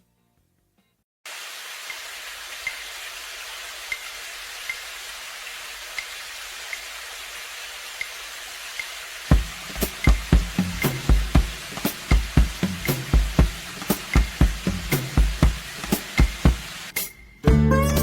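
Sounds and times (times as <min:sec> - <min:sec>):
steady rain-like hiss: 0:01.3 - 0:17.2
deep kick drum beats: 0:09.3 - 0:16.9.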